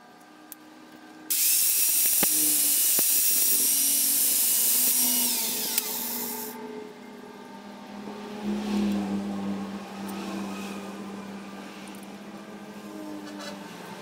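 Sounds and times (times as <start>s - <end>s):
electric power tool whining: 1.3s - 6.6s.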